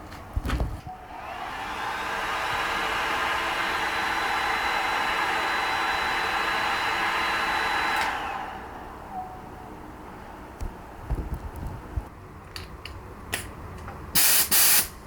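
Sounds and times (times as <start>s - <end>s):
electric motor tool whining: 1.2s - 8.8s.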